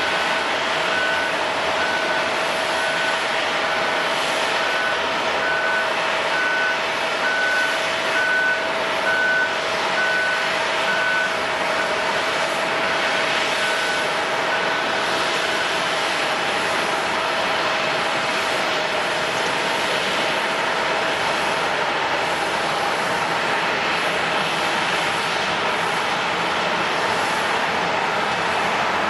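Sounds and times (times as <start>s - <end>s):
vehicle reversing alarm beeping: 0.0s - 16.2s
airport apron noise with hum: 0.0s - 29.0s.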